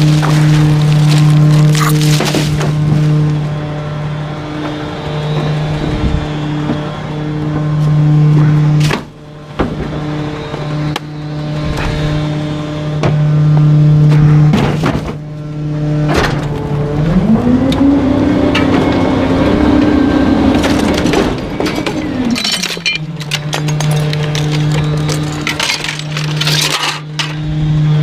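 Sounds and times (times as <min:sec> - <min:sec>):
items cracking and crunching: 0:00.0 - 0:03.3, 0:20.4 - 0:27.2
garbage truck engine: 0:00.0 - 0:28.0
hydraulic packer: 0:00.0 - 0:28.0.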